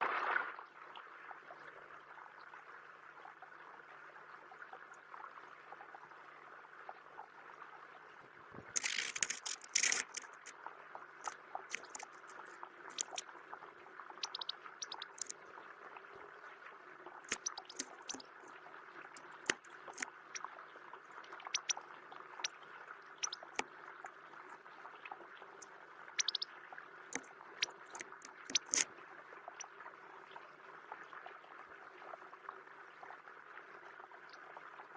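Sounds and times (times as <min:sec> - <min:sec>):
birds splashing in water: 0:14.2 - 0:15.3, 0:17.3 - 0:18.3, 0:26.2 - 0:26.5.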